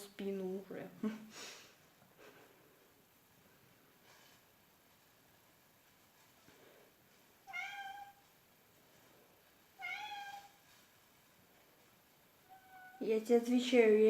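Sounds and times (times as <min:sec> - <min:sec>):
cat meowing: 0:07.4 - 0:08.3, 0:09.8 - 0:10.6, 0:12.4 - 0:13.0.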